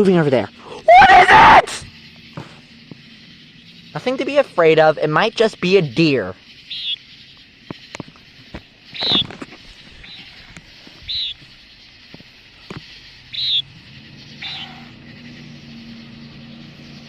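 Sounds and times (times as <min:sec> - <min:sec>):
low vehicle hum: 0:09.6 - 0:17.0
bird's short buzzy call: 0:13.3 - 0:15.0.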